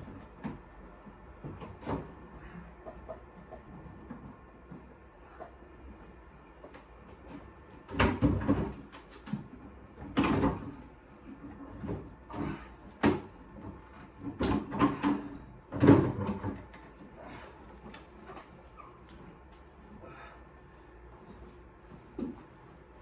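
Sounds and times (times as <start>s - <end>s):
metal clunks and rattles: 11.4s - 17.0s.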